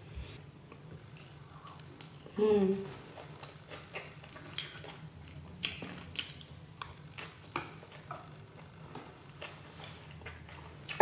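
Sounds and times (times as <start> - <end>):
person chewing food: 3.0 - 11.0.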